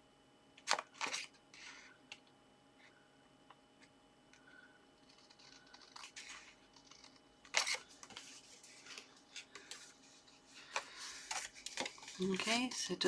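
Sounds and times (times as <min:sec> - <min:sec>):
cardstock rustling: 0:05.0 - 0:13.0.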